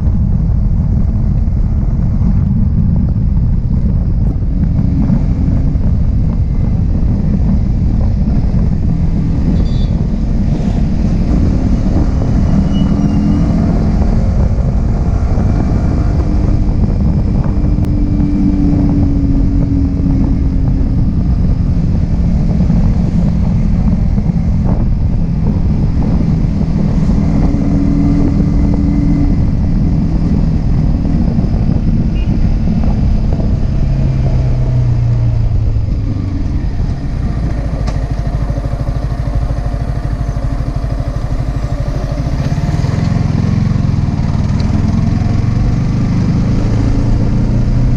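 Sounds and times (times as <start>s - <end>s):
motorcycle engine running: 0.0s - 47.9s
wind rush on microphone: 0.0s - 47.9s.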